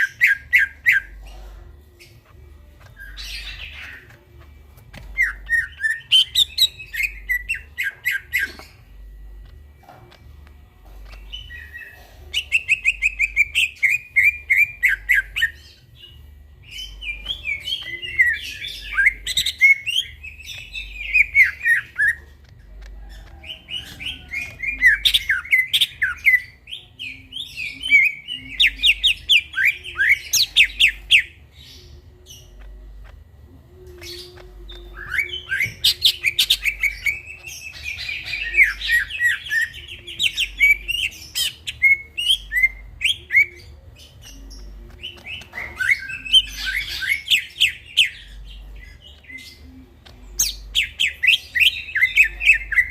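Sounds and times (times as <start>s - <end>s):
bird singing chattering trills: 0.0s - 52.9s.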